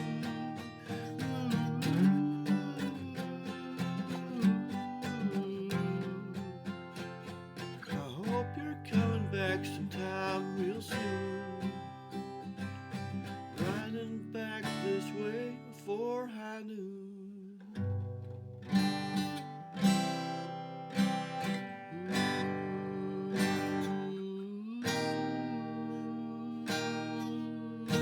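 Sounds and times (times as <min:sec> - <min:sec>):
acoustic guitar strumming chords: 0:00.0 - 0:16.6, 0:17.6 - 0:28.0.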